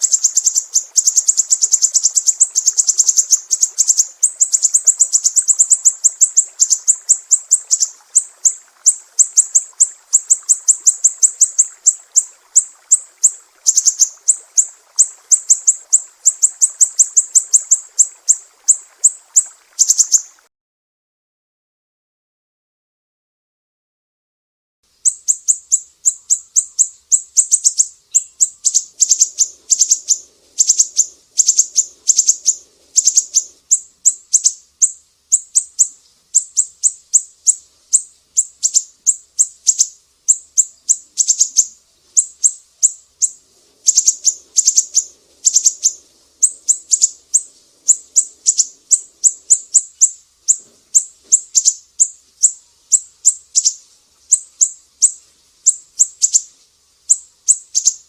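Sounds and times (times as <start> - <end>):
songbird chirping: 0.0 - 20.5, 24.9 - 58.0.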